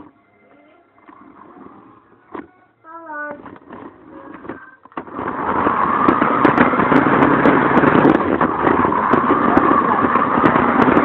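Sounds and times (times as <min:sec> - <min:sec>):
rc car motor whirring: 0:05.0 - 0:11.0.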